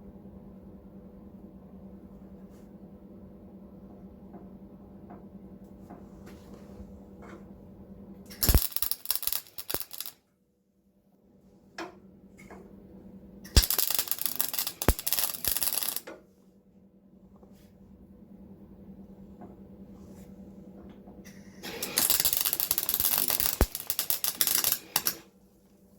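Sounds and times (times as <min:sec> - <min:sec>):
welder bursts: 0:08.3 - 0:10.1, 0:13.5 - 0:16.0, 0:21.3 - 0:25.3
steady low hum: 0:10.7 - 0:25.9.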